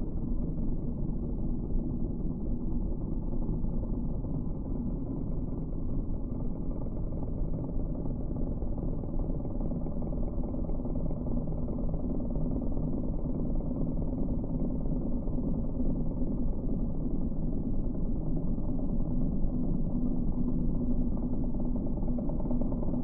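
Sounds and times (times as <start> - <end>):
stump grinder low rumble: 10.9 - 23.0.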